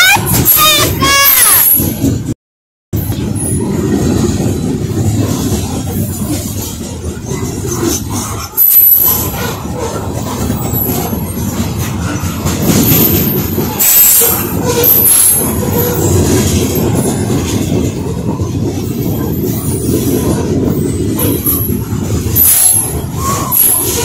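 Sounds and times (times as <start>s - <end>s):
train cars rumbling on rails: 0.0s - 2.4s, 3.0s - 24.0s
wheels clicking: 3.0s - 24.0s
wheel squeals: 5.3s - 24.0s.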